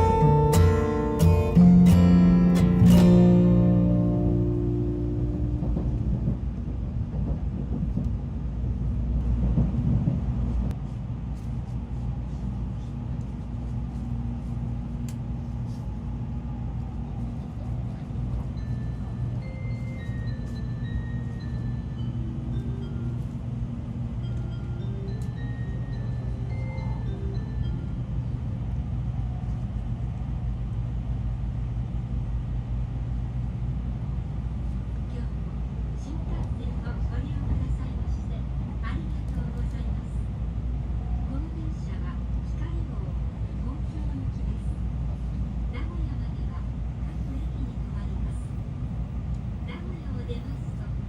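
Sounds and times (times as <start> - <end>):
train rumbling: 0.0 - 51.0
on-board chime melody: 24.2 - 28.2.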